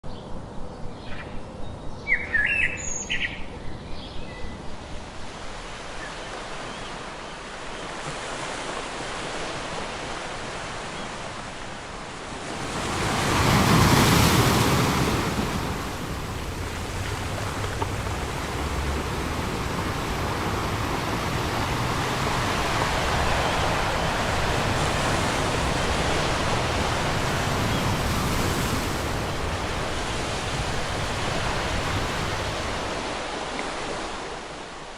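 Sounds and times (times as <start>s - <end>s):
surf washing: 11.5s - 34.9s
wave breaking: 12.4s - 34.4s
bird calls: 12.5s - 29.8s.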